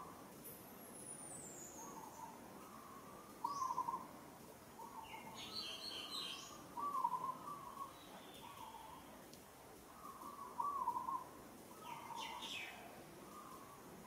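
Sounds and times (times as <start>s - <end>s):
bird calling: 1.6s - 4.1s, 4.8s - 9.1s, 9.9s - 13.9s.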